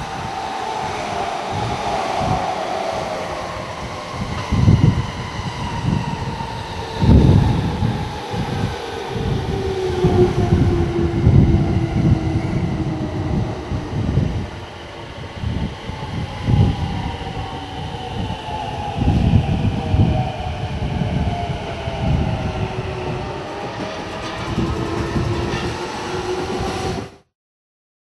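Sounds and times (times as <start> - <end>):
rolling rail noise: 0.0 - 27.3
electric train motor whine: 7.0 - 14.6.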